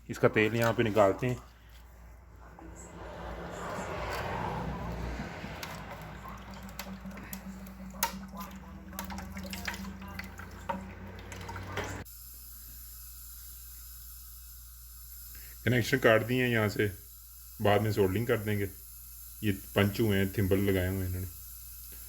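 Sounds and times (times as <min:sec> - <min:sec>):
oil pouring and splashing: 0:04.0 - 0:12.1
dripping: 0:04.9 - 0:12.0.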